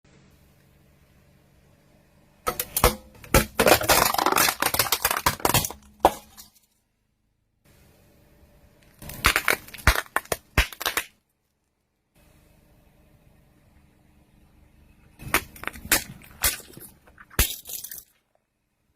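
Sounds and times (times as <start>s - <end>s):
car tyres crushing crunchy objects: 2.5s - 6.6s, 9.0s - 11.2s, 15.2s - 18.2s.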